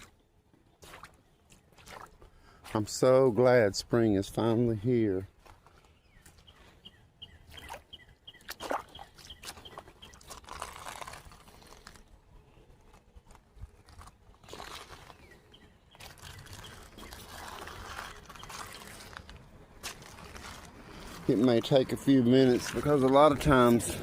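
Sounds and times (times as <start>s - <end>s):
water trickling and sloshing: 0.0s - 3.0s, 7.4s - 12.0s, 15.9s - 24.0s
footsteps crunching on gravel: 5.2s - 6.6s, 13.3s - 24.0s.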